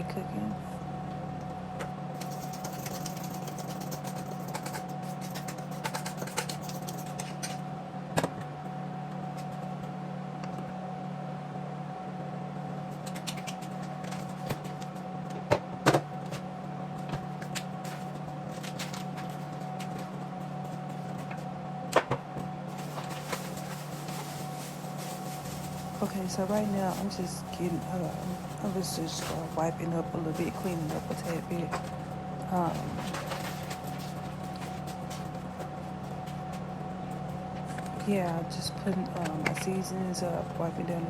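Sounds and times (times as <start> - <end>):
low hum with faint whine: 0.0 - 41.0
items clicking and knocking: 1.8 - 7.6, 13.0 - 16.4, 17.0 - 39.9.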